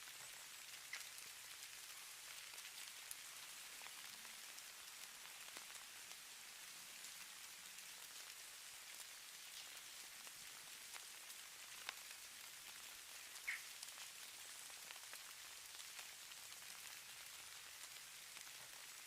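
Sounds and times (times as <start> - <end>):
soft ticks of precipitation: 0.0 - 19.0
faint high hiss: 13.1 - 16.1.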